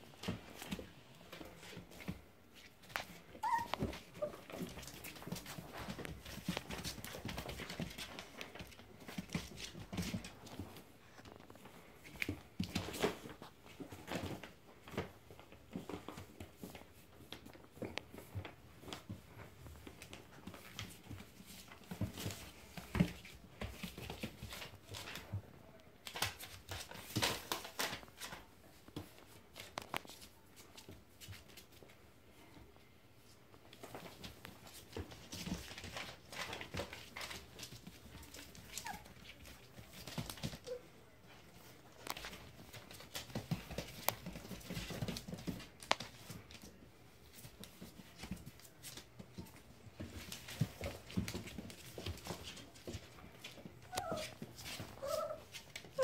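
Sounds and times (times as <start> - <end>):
puppies scuffling and scratching: 0.0 - 56.0
small dog sounds: 2.9 - 7.6, 35.5 - 41.9, 53.4 - 56.0.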